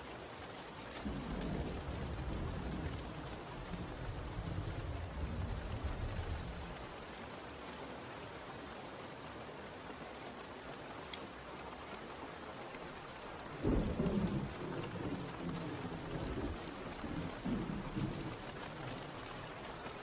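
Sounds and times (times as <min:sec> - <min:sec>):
steady rain falling: 0:00.0 - 0:20.0
thunder rumbling: 0:01.0 - 0:06.8, 0:13.4 - 0:19.7.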